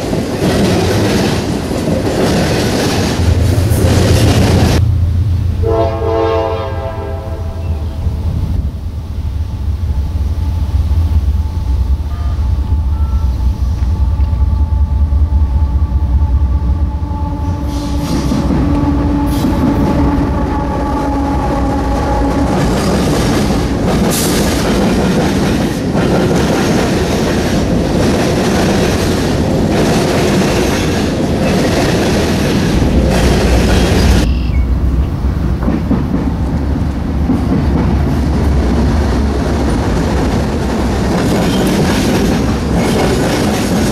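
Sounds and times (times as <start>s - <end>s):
locomotive engine rumble: 2.7s - 26.4s, 27.6s - 43.9s.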